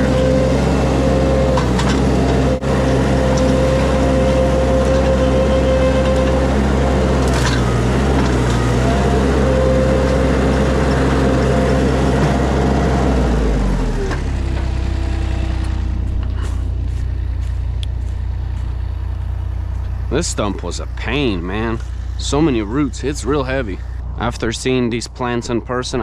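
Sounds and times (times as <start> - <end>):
skid steer engine running: 0.0 - 26.0.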